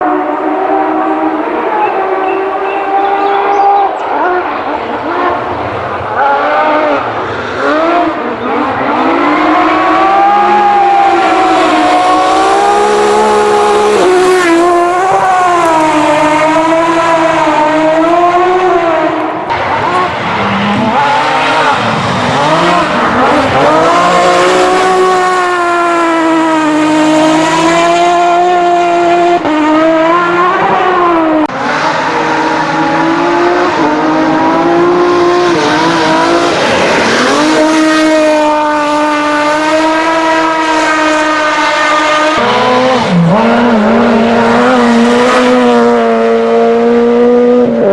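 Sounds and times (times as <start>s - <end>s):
rally car engine revving: 0.0s - 47.9s
tyres squealing and skidding: 0.3s - 13.4s.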